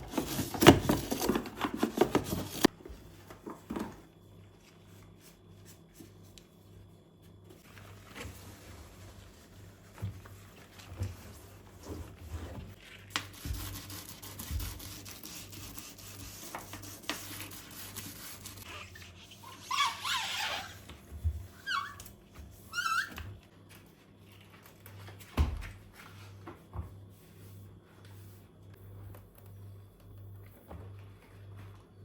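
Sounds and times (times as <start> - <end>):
rubbing while cleaning: 7.9 - 20.8.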